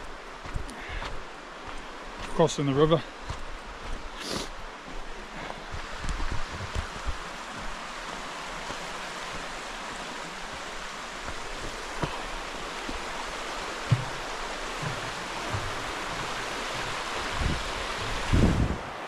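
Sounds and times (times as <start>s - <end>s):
river flowing over stones: 0.0s - 19.0s
low thumps: 13.8s - 18.6s.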